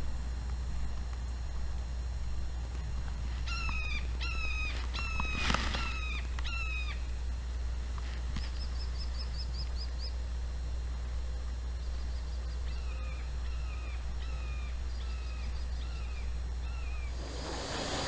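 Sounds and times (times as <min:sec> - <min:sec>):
bird harsh calls: 0:03.4 - 0:07.1, 0:11.8 - 0:18.0.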